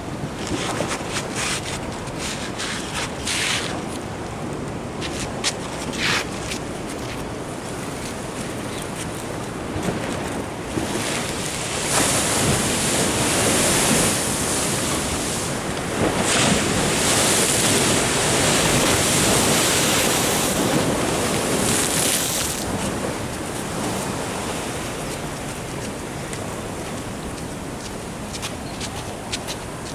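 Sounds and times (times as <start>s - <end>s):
ocean surf rushing: 9.7s - 29.9s.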